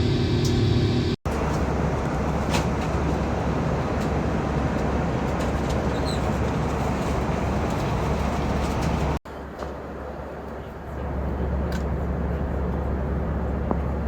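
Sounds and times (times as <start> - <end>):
vehicle running hum: 0.0 - 14.0.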